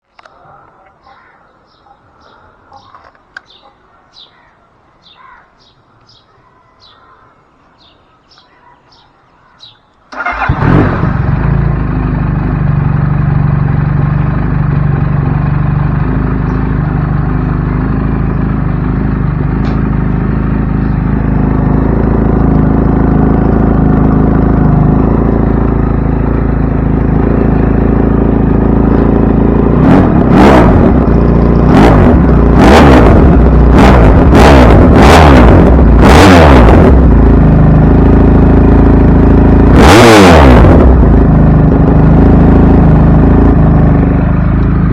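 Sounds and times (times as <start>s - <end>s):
birds chirping: 0.2s - 10.5s, 16.3s - 16.8s, 20.7s - 21.2s
motorcycle engine idling: 9.6s - 32.6s, 36.7s - 39.7s, 40.7s - 44.9s
motorcycle engine revving: 10.1s - 44.9s.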